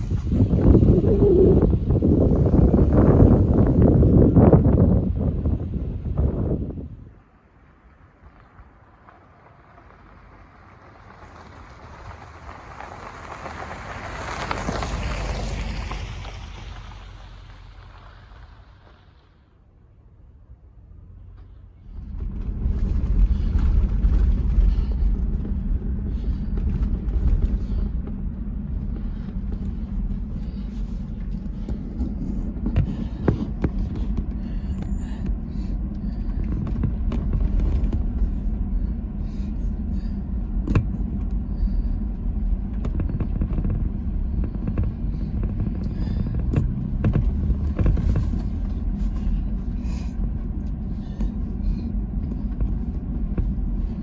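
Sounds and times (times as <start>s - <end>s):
vehicle rumbling on dirt trail: 0.0s - 54.0s
knocks and rattles: 40.5s - 49.9s.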